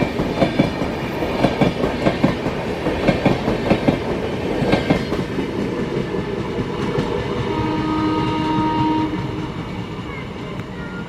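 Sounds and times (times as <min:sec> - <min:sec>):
train wheels clacking over joints: 0:00.0 - 0:07.5.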